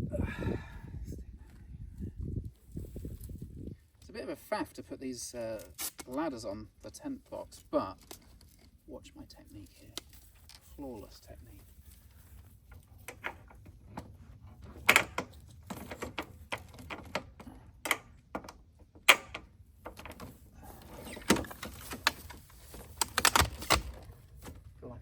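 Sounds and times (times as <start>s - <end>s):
ladder clacking and knocking: 12.7s - 24.7s.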